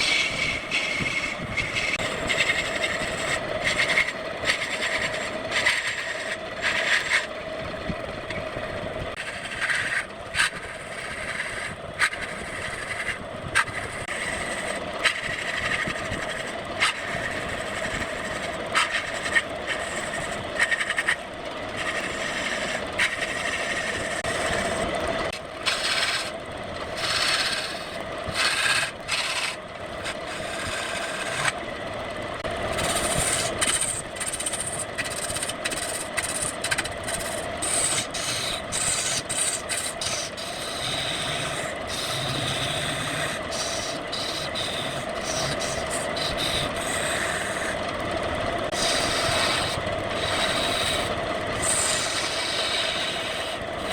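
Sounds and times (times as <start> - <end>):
wood lathe humming: 0.0 - 53.9
scraping and rubbing on wood: 9.2 - 21.2, 27.0 - 31.6, 32.7 - 47.8.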